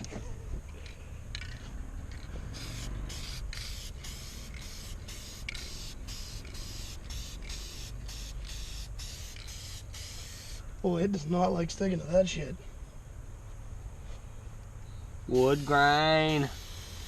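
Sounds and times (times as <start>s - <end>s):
spray paint can bursts: 2.6s - 10.6s, 15.3s - 17.0s.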